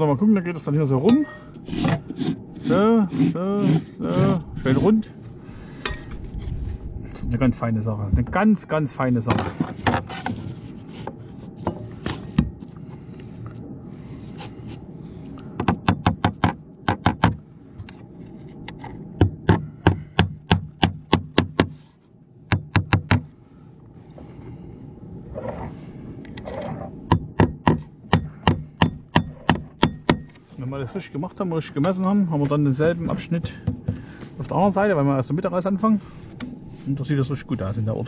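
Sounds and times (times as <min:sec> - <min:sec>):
hammer striking nails: 0:15.6 - 0:17.4, 0:19.2 - 0:21.8, 0:22.5 - 0:23.3, 0:27.1 - 0:30.4.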